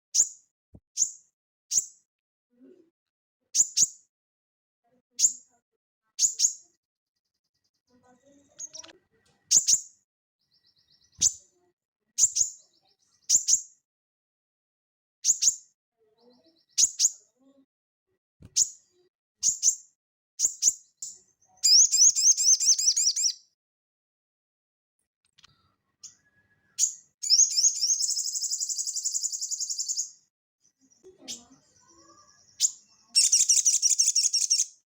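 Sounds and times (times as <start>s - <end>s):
rapid high bird trill: 21.6s - 23.4s, 32.6s - 34.8s.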